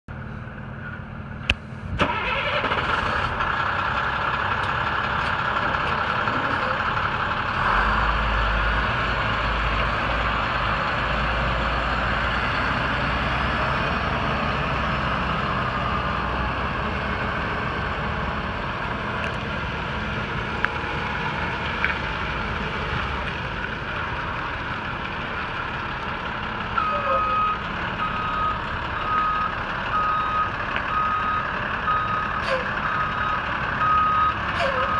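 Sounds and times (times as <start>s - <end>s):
truck diesel engine running: 0.1s - 34.9s
truck reverse alarm beeping: 26.7s - 34.9s.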